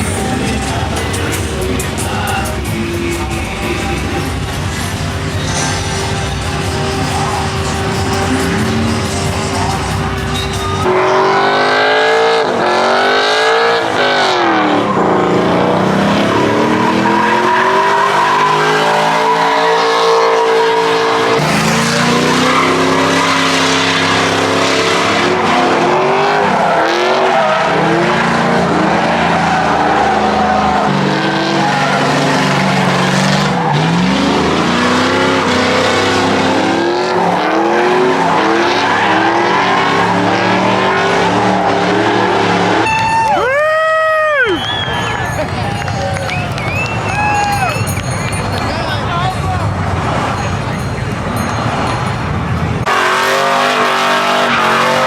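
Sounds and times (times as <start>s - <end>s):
truck engine revving hard: 0.0s - 43.1s, 49.6s - 55.0s
tyres screeching: 0.1s - 43.6s.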